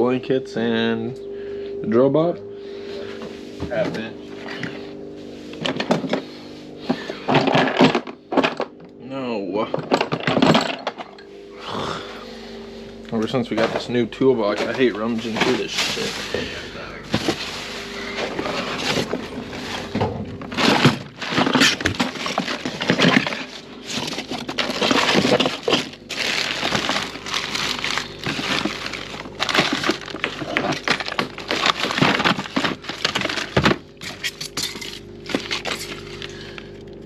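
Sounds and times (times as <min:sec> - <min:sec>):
tools clattering in a toolbox: 0:07.2 - 0:08.7, 0:09.6 - 0:11.2, 0:20.5 - 0:36.3.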